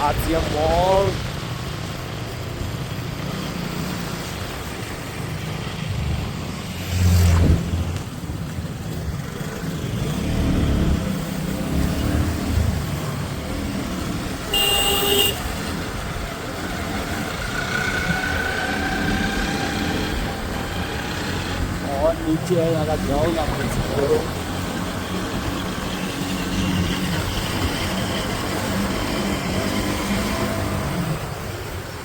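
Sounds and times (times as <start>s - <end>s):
motorbike engine and road rumble: 0.0s - 32.0s
vehicle horn honking: 14.5s - 15.5s.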